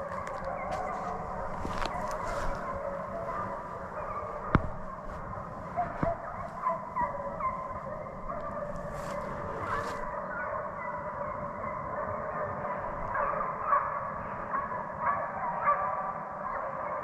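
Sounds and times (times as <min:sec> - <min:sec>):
hounds baying: 0:00.0 - 0:17.0.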